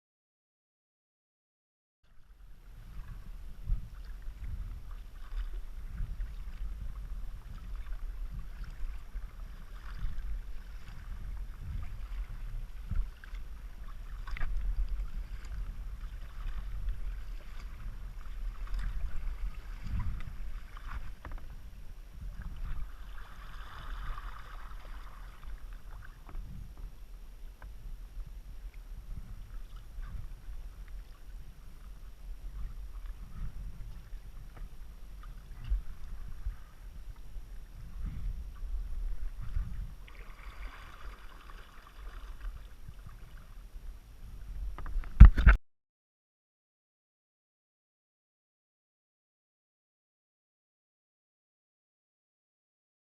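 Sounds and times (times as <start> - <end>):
steady low rumble: 2.1 - 41.2, 42.4 - 45.4
kayak paddle splashing in water: 2.6 - 26.9, 29.2 - 43.6.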